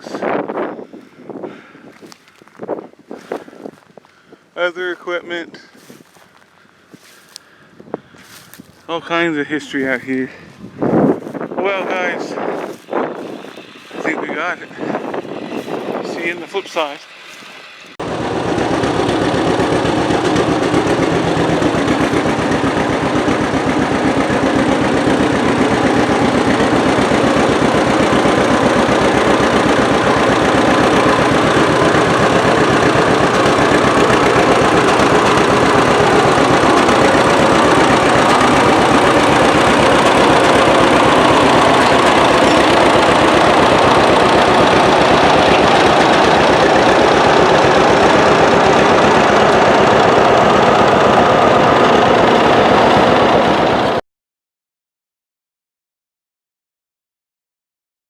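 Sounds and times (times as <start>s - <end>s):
loud pulsing engine: 11.1s - 54.0s.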